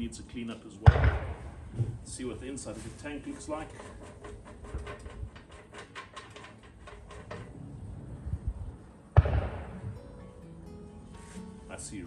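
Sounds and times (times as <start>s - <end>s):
small clicks and scrapes: 2.7s - 7.6s.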